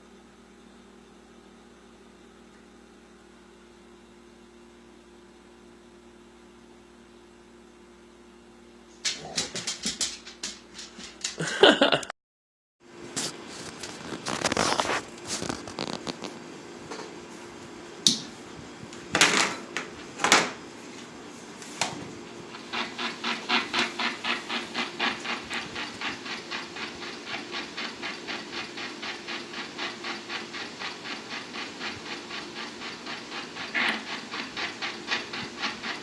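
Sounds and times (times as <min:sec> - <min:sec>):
dog panting: 0:22.6 - 0:36.0.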